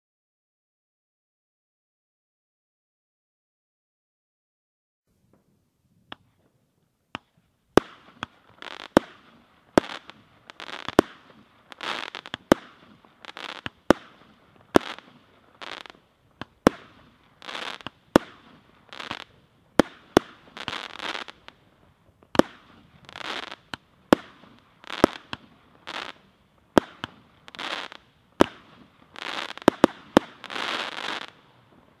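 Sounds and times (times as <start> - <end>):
firework crackling hiss: 7.8 - 32.0.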